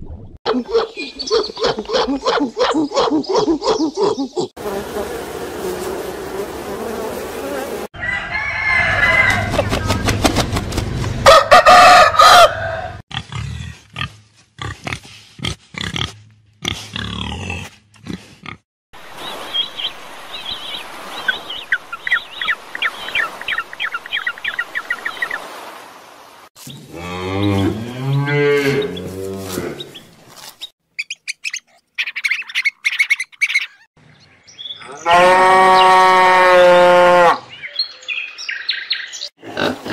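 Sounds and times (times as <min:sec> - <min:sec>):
rising and falling animal call: 0:00.5 - 0:04.5
chicken crowing and clucking: 0:07.9 - 0:10.0, 0:11.2 - 0:13.0.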